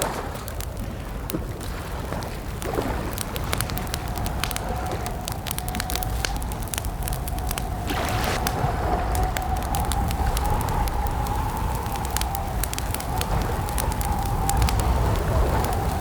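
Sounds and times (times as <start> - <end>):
campfire crackling and popping: 0.0 - 16.0
faint steady whistling tone: 3.2 - 16.0
low rumble: 3.2 - 16.0.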